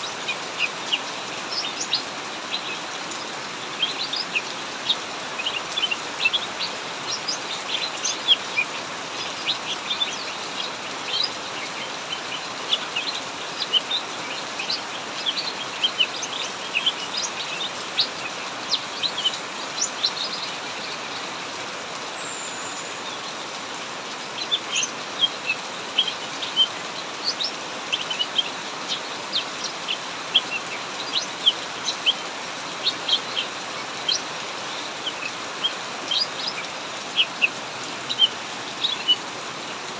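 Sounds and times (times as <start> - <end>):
heavy rain hissing: 0.0 - 39.9
birds chirping high notes: 24.4 - 39.9.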